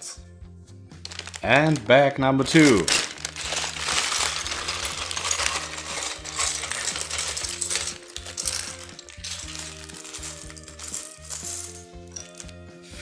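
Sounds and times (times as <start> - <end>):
soft background music: 0.0 - 13.0
plastic pieces clattering on table: 1.0 - 12.6.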